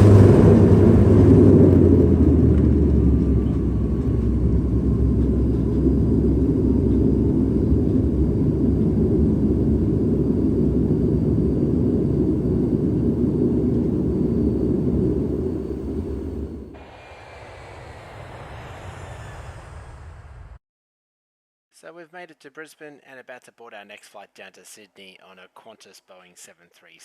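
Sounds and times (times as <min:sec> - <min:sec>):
low hum: 0:00.0 - 0:20.6
turboprop cabin rumble: 0:00.0 - 0:20.6.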